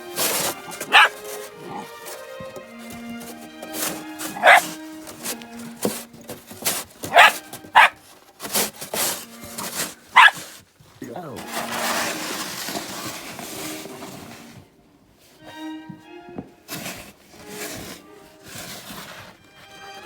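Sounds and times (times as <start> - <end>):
background music with held notes: 0.0 - 20.0
dog barking: 0.2 - 1.9, 4.2 - 4.8, 7.0 - 8.0, 10.1 - 10.4.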